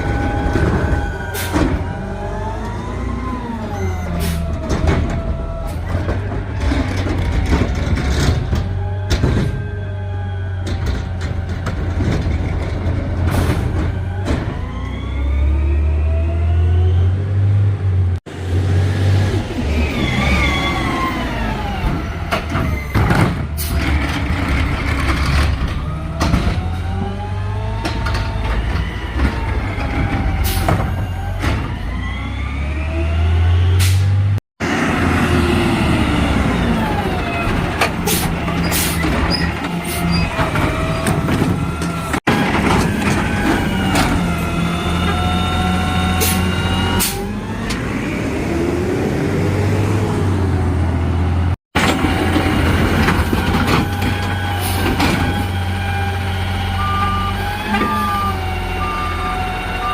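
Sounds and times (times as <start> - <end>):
garbage truck engine revving: 0.0 - 59.9.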